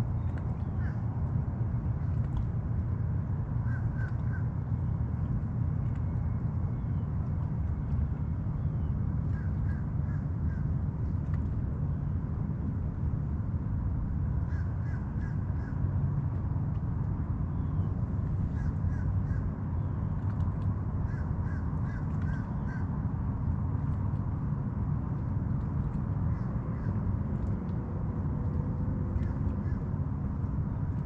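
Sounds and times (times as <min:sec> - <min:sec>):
steady low rumble: 0:00.0 - 0:31.0
crow cawing: 0:21.1 - 0:22.8.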